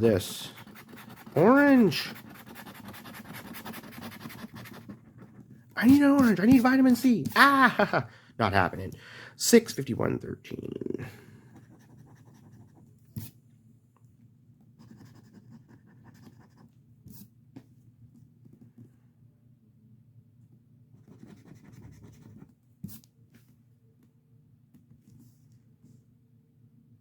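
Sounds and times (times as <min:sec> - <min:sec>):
scratch ticket rasping: 0:00.2 - 0:07.0.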